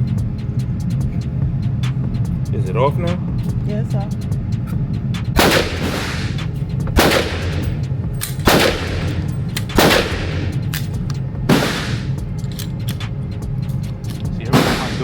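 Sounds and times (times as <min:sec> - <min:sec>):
handgun shots with echo: 0:05.4 - 0:06.4, 0:07.0 - 0:07.8, 0:08.4 - 0:09.2, 0:09.8 - 0:10.6, 0:11.5 - 0:12.2, 0:14.6 - 0:15.0.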